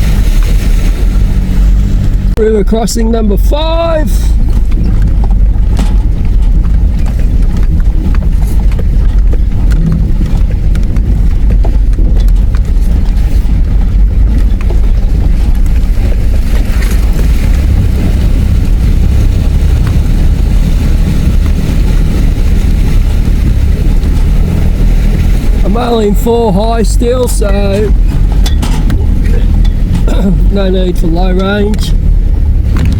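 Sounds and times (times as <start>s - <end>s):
vehicle engine rumbling: 0.0s - 32.9s
knocks from rough track: 4.4s - 26.4s, 27.7s - 30.4s.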